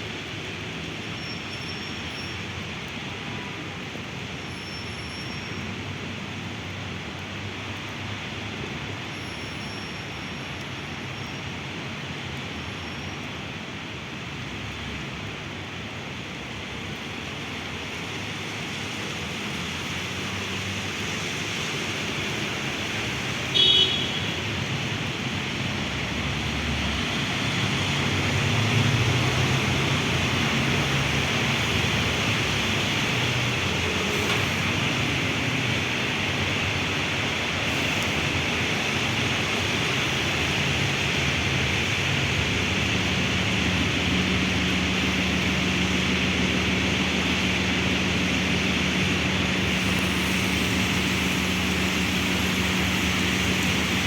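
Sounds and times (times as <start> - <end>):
traffic on wet roads: 0.0 - 54.0
heavy rain hissing: 14.2 - 54.0
vehicle rumble: 24.3 - 54.0.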